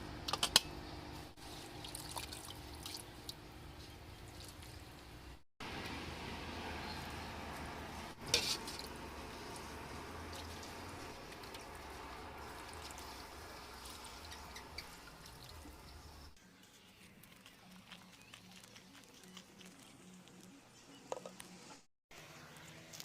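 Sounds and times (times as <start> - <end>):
dripping and running water: 1.8 - 3.4, 9.5 - 16.0.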